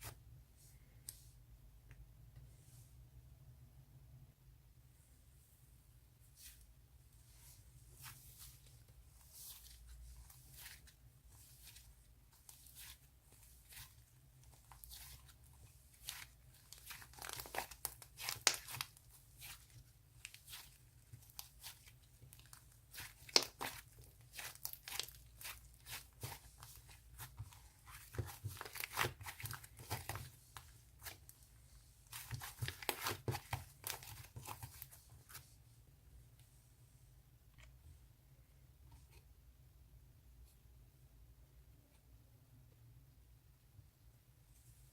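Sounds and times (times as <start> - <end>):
slime tearing and crackling: 16.0 - 20.7, 21.3 - 30.3.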